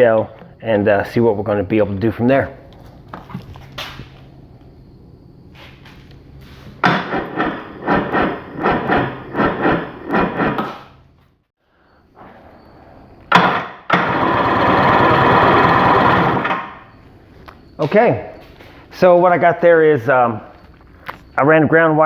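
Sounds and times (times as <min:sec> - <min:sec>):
electric starter cranking engine: 0:13.3 - 0:16.8.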